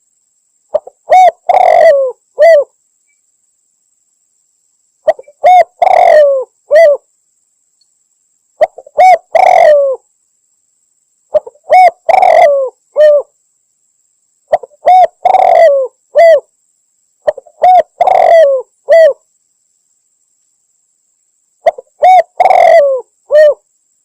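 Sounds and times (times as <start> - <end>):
dove cooing: 0.7 - 2.7, 5.0 - 7.0, 8.6 - 10.0, 11.3 - 13.3, 14.5 - 16.5, 17.2 - 19.2, 21.6 - 23.6.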